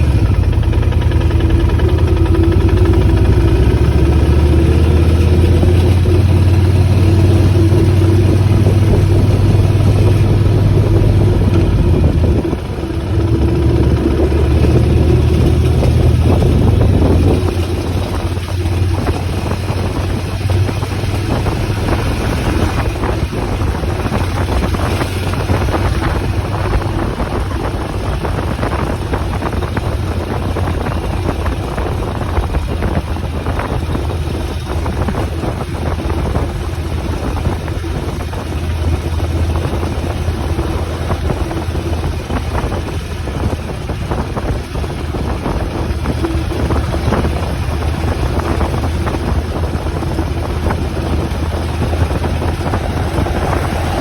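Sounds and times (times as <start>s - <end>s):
motorcycle engine running: 0.0s - 54.0s
wind on microphone: 0.0s - 54.0s.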